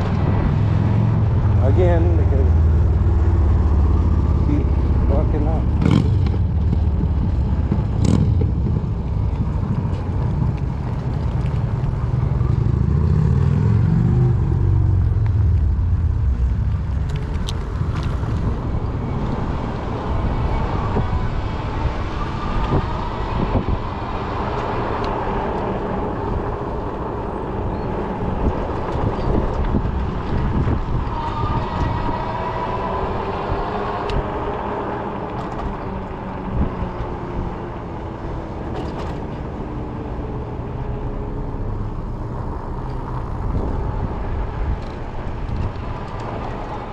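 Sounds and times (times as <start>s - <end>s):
fat tires rolling: 0.0s - 46.9s
wind on microphone: 14.3s - 37.7s.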